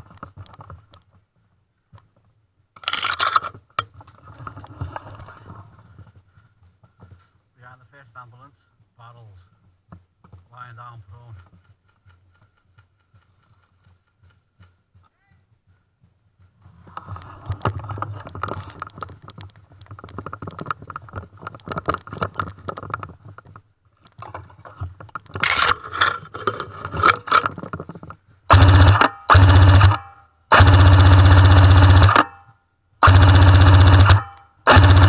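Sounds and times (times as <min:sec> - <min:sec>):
scraping and rustling of gear: 0:16.5 - 0:28.4
airsoft gun full-auto bursts: 0:28.5 - 0:32.4, 0:33.0 - 0:35.0.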